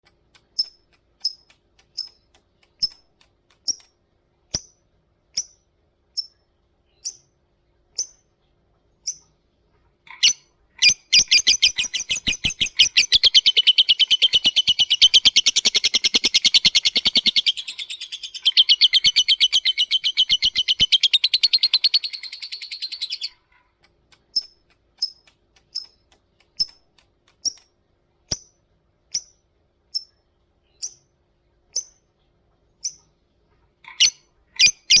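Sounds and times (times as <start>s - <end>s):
bird high chirps: 10.1s - 23.4s, 33.9s - 35.0s.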